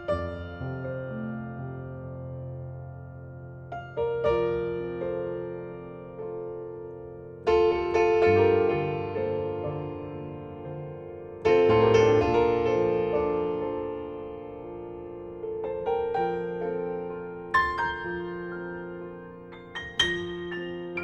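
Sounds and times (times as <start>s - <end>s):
slow gentle piano chords: 0.0s - 21.0s.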